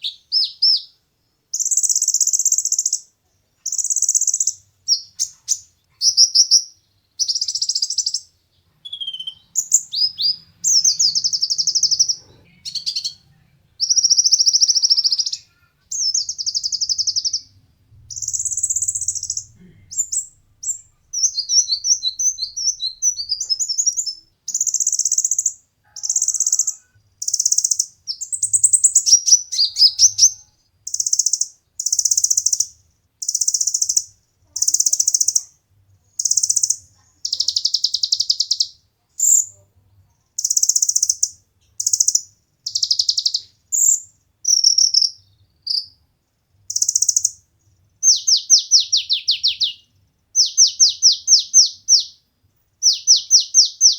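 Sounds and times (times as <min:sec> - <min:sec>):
bird twittering: 0:03.7 - 0:13.2, 0:13.8 - 0:35.5, 0:36.2 - 0:39.5, 0:40.4 - 0:45.9, 0:48.0 - 0:52.2, 0:52.8 - 0:53.9
bird singing high trills: 0:06.1 - 0:13.2, 0:13.8 - 0:32.6, 0:48.0 - 0:52.2, 0:52.8 - 0:53.9.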